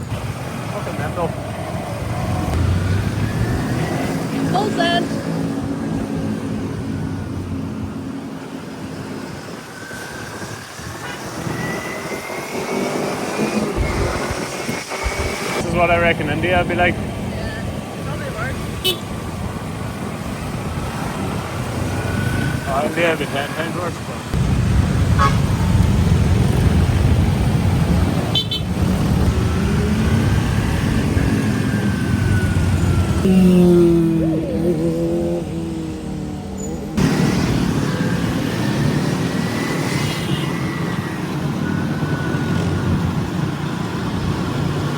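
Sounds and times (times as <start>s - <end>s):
traffic noise: 0.0s - 44.9s
vehicle horn toot: 18.8s - 19.1s, 25.2s - 25.5s, 28.3s - 28.7s
motorcycle engine: 24.3s - 44.9s.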